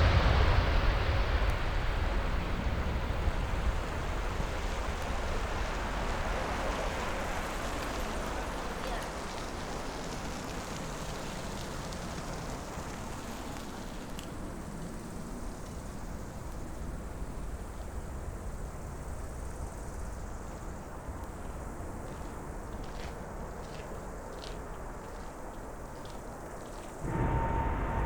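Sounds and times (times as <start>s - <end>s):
jet engine rushing: 27.0s - 28.0s.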